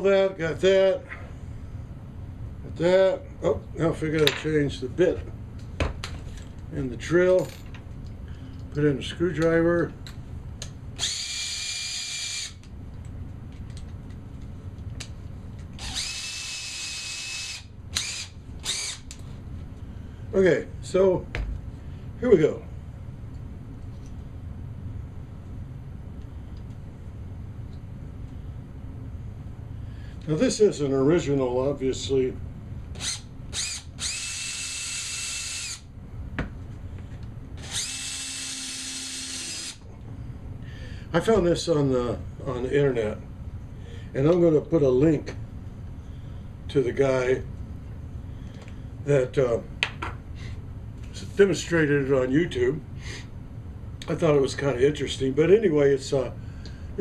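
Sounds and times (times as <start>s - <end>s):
power drill motor whine: 11.0s - 12.7s, 15.8s - 19.1s, 33.0s - 35.9s, 37.6s - 39.8s.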